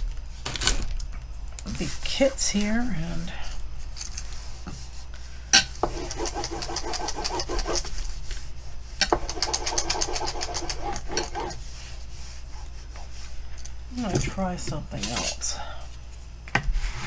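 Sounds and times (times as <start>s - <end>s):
hand tool scraping plastic film: 9.2s - 11.6s.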